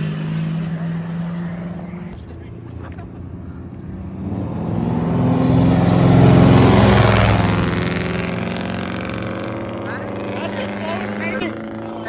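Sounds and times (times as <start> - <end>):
race engine accelerating past: 0.0 - 12.0.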